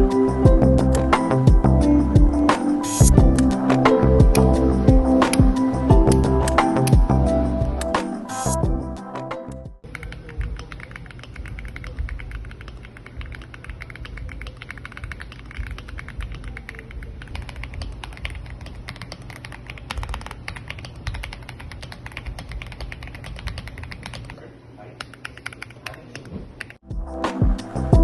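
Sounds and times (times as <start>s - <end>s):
mechanical keyboard typing: 5.2s - 5.5s, 9.8s - 24.4s, 25.0s - 26.8s.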